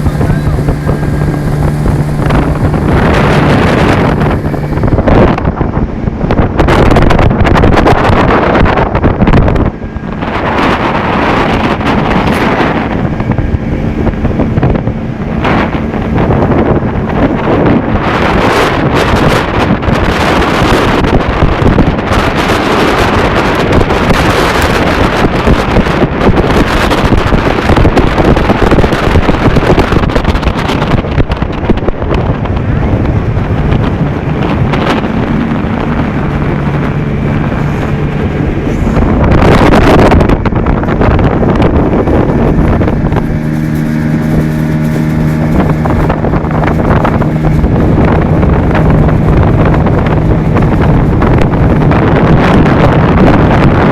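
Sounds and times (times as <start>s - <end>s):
boat running noise: 0.0s - 53.9s
motorboat engine humming: 0.0s - 53.9s
wind buffeting microphone: 0.0s - 53.9s.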